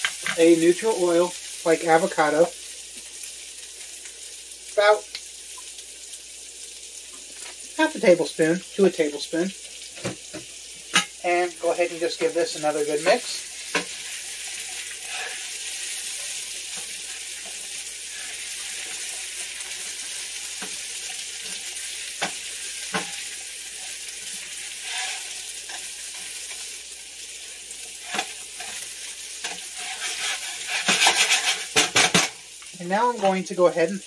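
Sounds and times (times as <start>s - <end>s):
potatoes sizzling in a pan: 0.0s - 34.0s
stirring and scraping: 28.0s - 32.1s.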